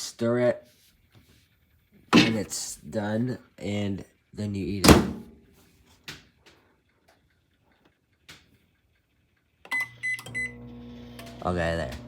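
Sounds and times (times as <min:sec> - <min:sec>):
microwave keypad beep: 0:09.7 - 0:10.6.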